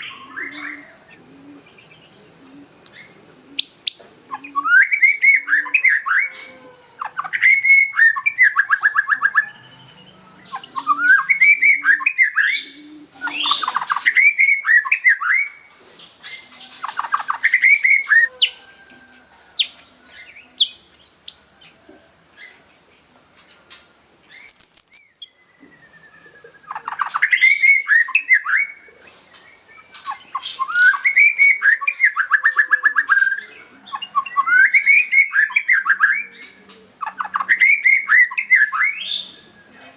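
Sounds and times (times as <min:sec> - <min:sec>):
bird singing whistled phrases: 0:02.9 - 0:15.6, 0:24.3 - 0:28.9, 0:29.7 - 0:39.8.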